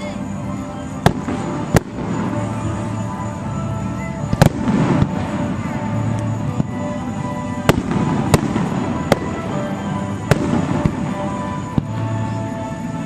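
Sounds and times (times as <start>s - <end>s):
background music: 0.0s - 13.0s
fireworks bursting: 0.0s - 13.0s.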